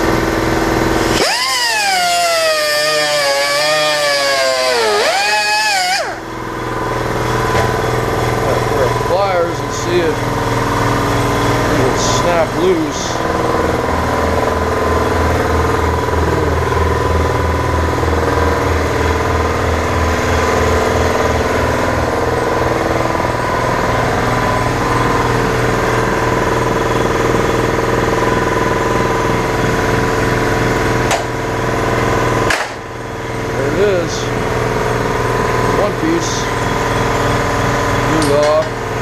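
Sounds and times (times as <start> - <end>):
motor humming: 0.0 - 29.0.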